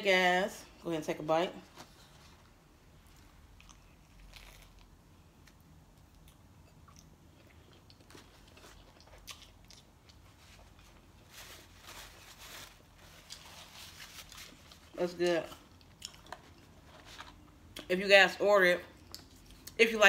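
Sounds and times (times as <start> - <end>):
chewing and biting sandwich: 3.5 - 11.2.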